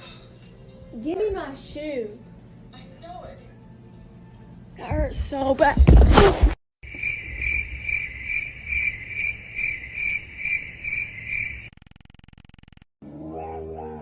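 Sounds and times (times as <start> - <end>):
cricket chirping: 6.8 - 11.8.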